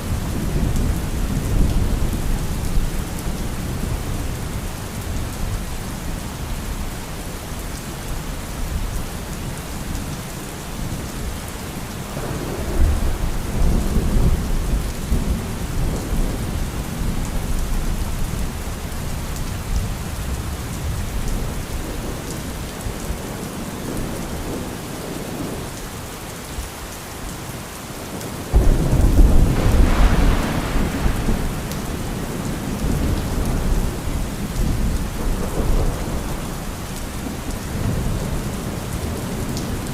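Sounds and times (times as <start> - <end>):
steady rain: 0.0 - 39.9
rolling thunder: 28.5 - 38.3.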